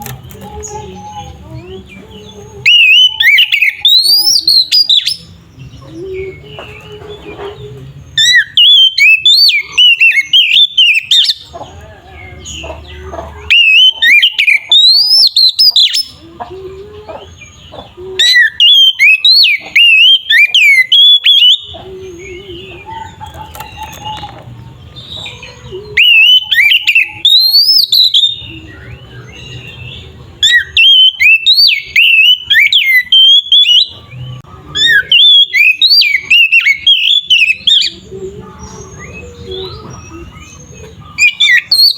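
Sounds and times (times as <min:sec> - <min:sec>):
bird singing whistled song: 0:00.0 - 0:06.9, 0:08.1 - 0:11.5, 0:13.4 - 0:16.2, 0:17.4 - 0:24.4, 0:25.0 - 0:41.9.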